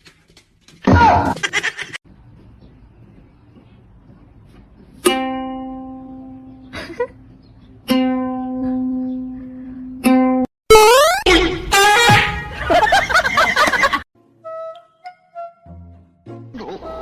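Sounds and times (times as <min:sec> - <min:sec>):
plucked string notes: 0:05.0 - 0:06.6, 0:07.8 - 0:10.5.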